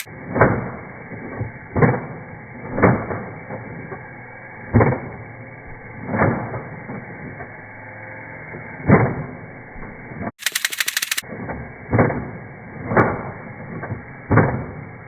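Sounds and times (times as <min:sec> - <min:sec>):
slowed-down toy blaster thumps: 0:00.0 - 0:07.9, 0:08.5 - 0:15.0
rapid clicking blaster shots: 0:10.4 - 0:11.2.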